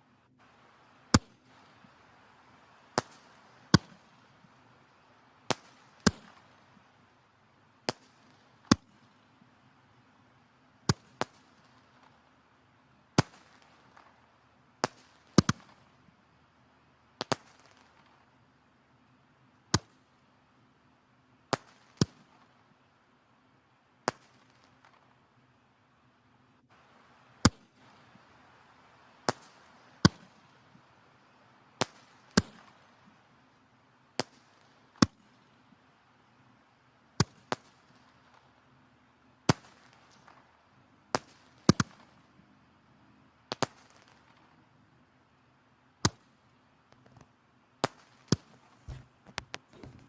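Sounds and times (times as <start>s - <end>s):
faint steady hiss: 0.0s - 50.0s
firewood crackling and popping: 0.5s - 6.9s, 17.2s - 18.4s, 21.5s - 22.7s, 26.6s - 35.9s, 36.6s - 38.6s, 39.5s - 42.4s, 46.0s - 50.0s.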